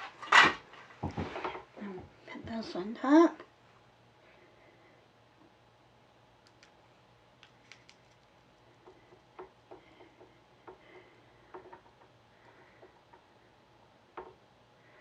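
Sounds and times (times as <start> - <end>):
faint low hum: 0.0 - 15.0
small clicks and taps: 6.4 - 6.8, 7.4 - 12.1.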